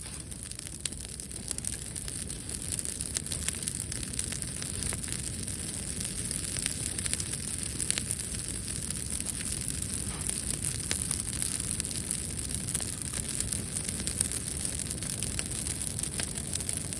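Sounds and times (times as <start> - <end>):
wood bonfire crackling: 0.0 - 16.9.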